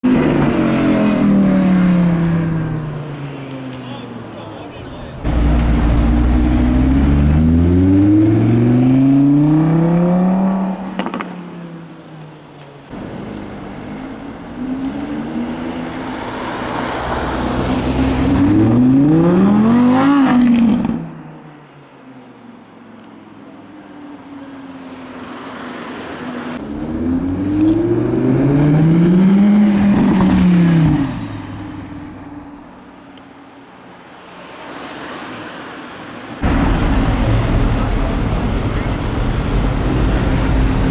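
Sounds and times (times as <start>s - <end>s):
exhaust crackles: 4.1s - 9.0s, 36.4s - 40.9s
car engine accelerating: 4.2s - 11.2s, 12.9s - 21.0s, 26.5s - 31.6s, 36.4s - 40.9s.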